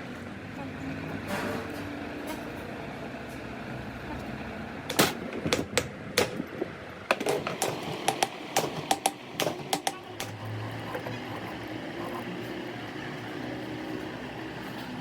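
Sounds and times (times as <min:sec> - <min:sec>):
sharp irregular clicks and knocks: 0:07.1 - 0:11.2.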